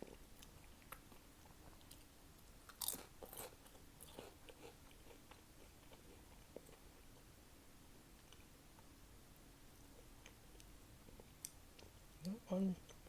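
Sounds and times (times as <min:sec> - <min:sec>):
crunching and chewing chips: 0:00.0 - 0:06.9.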